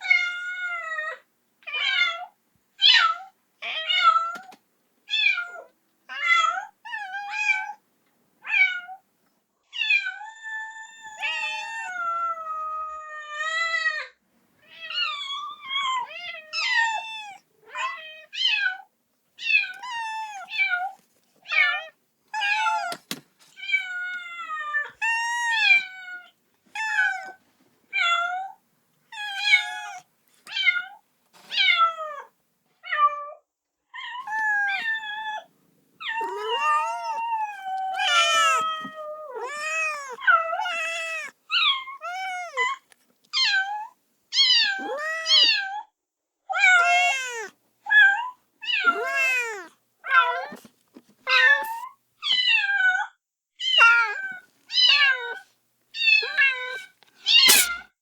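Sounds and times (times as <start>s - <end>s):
kitten meowing: 19.4s - 20.9s, 29.1s - 30.7s, 34.2s - 42.8s, 43.4s - 45.6s, 46.6s - 50.7s, 53.7s - 55.4s, 56.0s - 57.8s.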